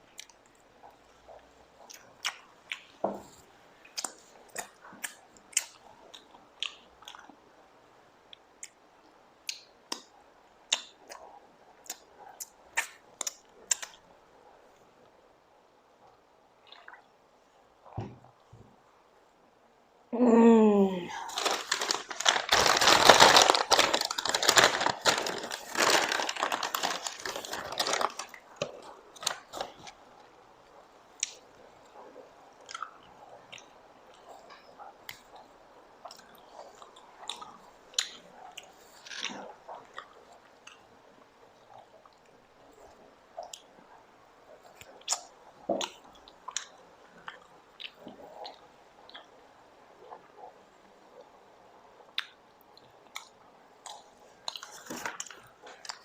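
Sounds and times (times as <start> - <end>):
crinkling and crushing: 21.1 - 30.0, 53.9 - 56.0
mouth chewing: 31.2 - 40.9, 44.6 - 49.4.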